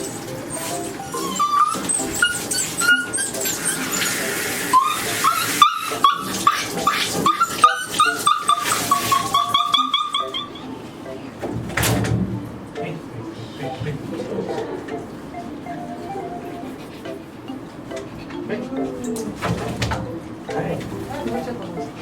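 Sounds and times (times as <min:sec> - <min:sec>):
dog whining: 0:00.0 - 0:10.9, 0:14.5 - 0:17.3
faint background music: 0:00.0 - 0:22.0.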